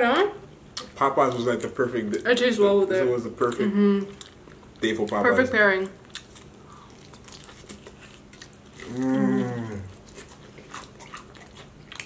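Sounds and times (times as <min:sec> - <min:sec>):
chewing fried chicken: 0:00.8 - 0:12.0
person humming mmm: 0:08.8 - 0:10.0.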